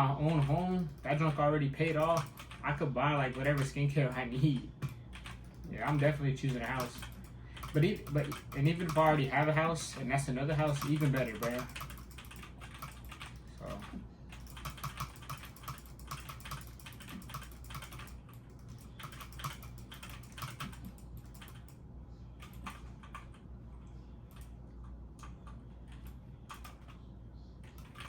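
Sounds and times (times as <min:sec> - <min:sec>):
low steady hum: 0:00.0 - 0:28.0
typing on a keyboard: 0:00.2 - 0:02.6, 0:03.3 - 0:03.8, 0:04.8 - 0:09.6, 0:10.6 - 0:21.8, 0:25.2 - 0:27.0, 0:27.6 - 0:28.0.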